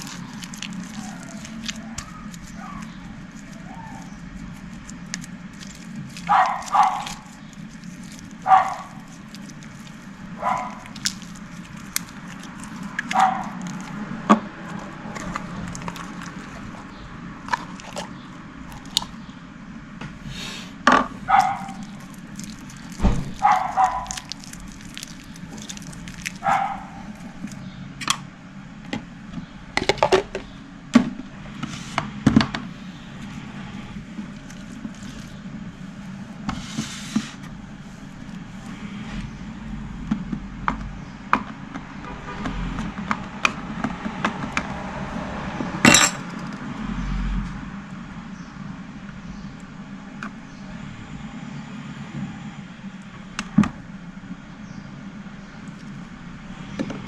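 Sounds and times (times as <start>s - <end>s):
wet slime squelches: 0.0s - 19.3s, 20.2s - 27.8s, 32.7s - 39.4s
low steady hum: 0.0s - 57.0s.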